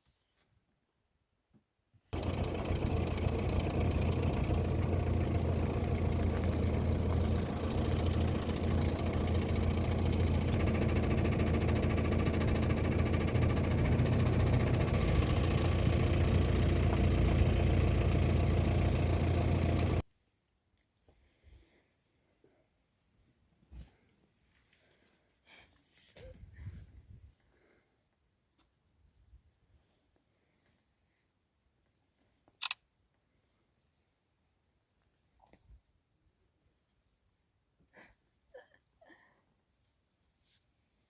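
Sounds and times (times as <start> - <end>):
vehicle engine humming: 2.2 - 20.0.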